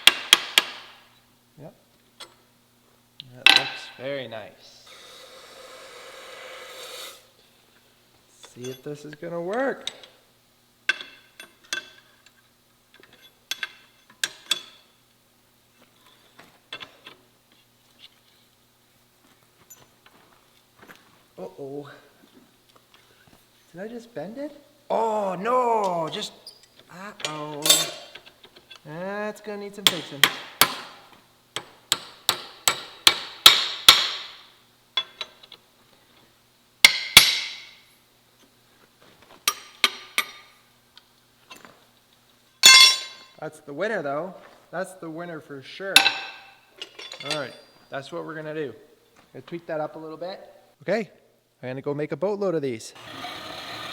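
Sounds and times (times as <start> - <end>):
steel hook clinking on steel bar: 27.2 - 28.2, 42.6 - 43.2.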